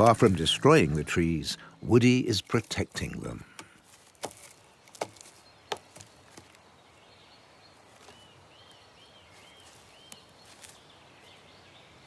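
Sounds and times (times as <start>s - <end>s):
woodpecker knocking on wood: 3.5s - 6.6s.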